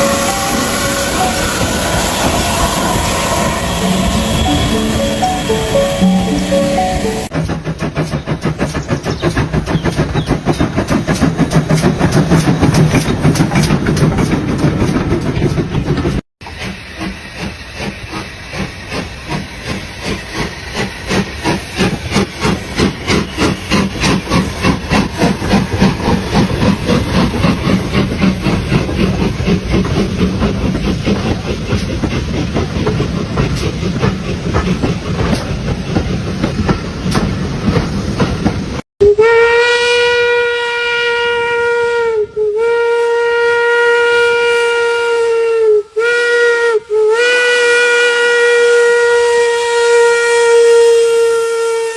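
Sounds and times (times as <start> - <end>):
steam hiss: 0.0 - 12.7, 16.4 - 38.7
steam locomotive chuffing: 0.0 - 39.2.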